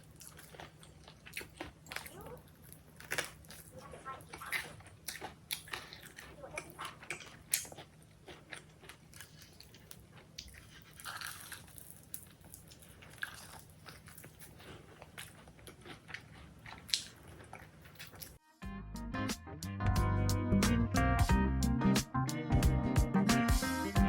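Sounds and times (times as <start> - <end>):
person chewing crunchy food: 0.0 - 18.4.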